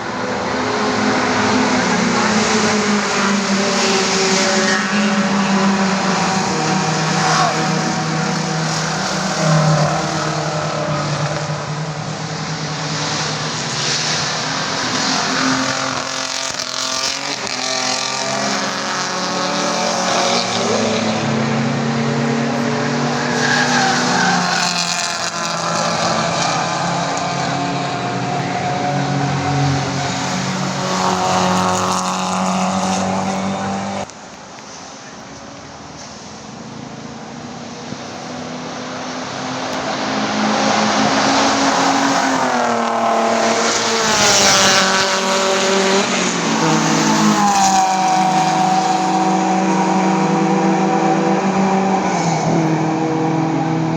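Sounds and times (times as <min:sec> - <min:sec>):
race car engines at high revs: 0:00.0 - 0:53.9.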